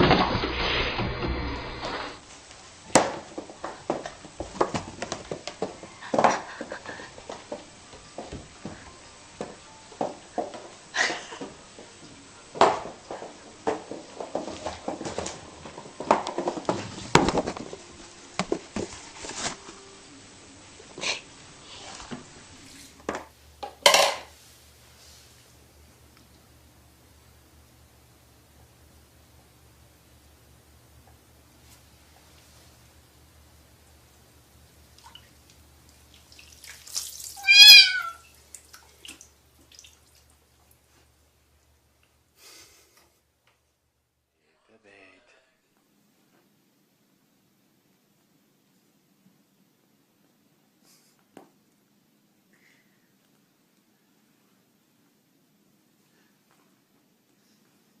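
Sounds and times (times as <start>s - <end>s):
cat meowing: 37.4s - 38.3s.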